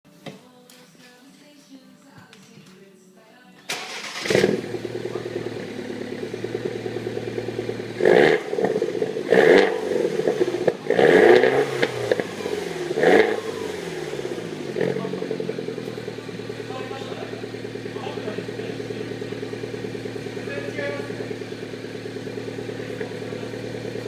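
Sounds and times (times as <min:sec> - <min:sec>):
car engine idling and revving: 0:03.8 - 0:24.0.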